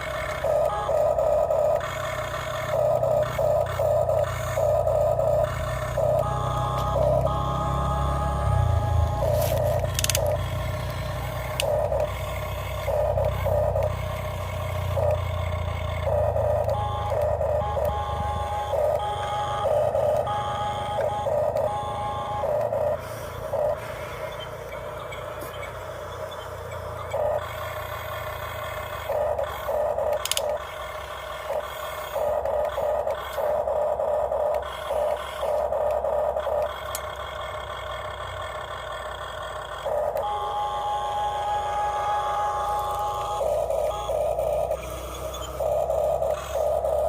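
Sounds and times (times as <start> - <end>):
small electric motors whirring: 0.0 - 47.0
steady low hum: 0.0 - 47.0.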